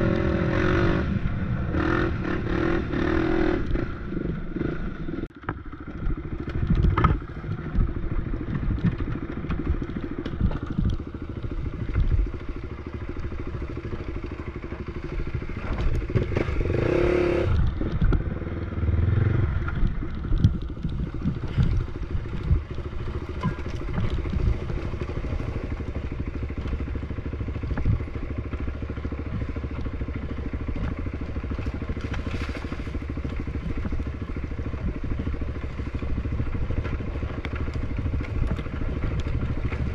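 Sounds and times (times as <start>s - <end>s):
off-road bike engine: 0.0s - 39.9s
bike clattering over rough ground: 19.8s - 39.9s.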